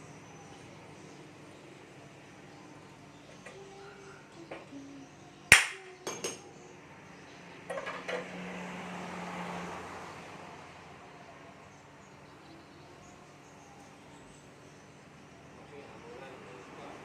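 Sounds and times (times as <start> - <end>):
hammer striking metal: 5.5 - 6.4.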